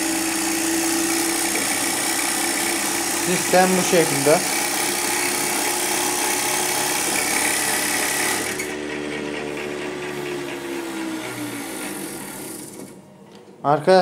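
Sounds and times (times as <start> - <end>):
milk separator whirring: 0.0 - 13.5.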